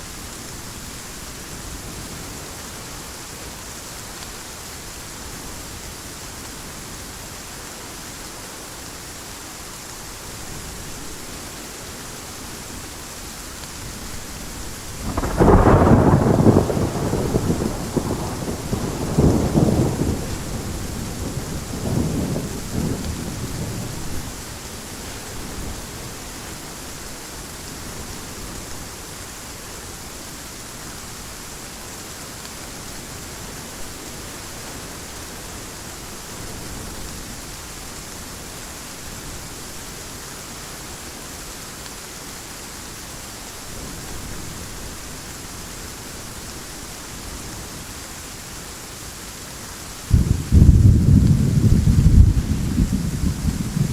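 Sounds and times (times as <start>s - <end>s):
heavy rain falling: 0.0s - 53.9s
thunder rumbling: 14.9s - 24.3s, 50.1s - 53.9s.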